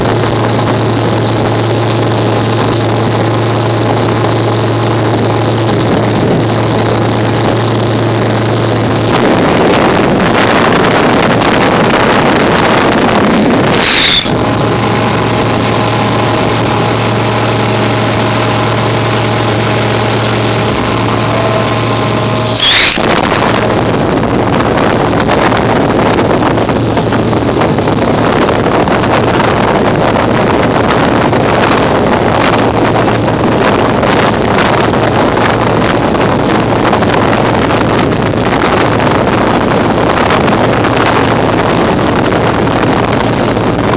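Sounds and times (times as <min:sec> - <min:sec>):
boat engine running: 0:00.0 - 0:43.9
wind on microphone: 0:00.0 - 0:43.9
water rushing: 0:02.9 - 0:25.7
sharp loud noises: 0:13.7 - 0:14.4, 0:21.0 - 0:23.4.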